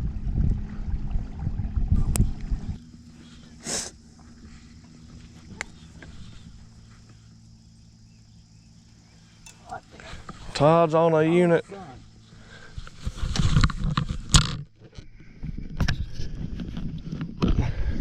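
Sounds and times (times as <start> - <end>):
faint low hum: 0.0 - 14.3
low rumbling noise: 0.0 - 14.4
short hiss: 3.6 - 4.0.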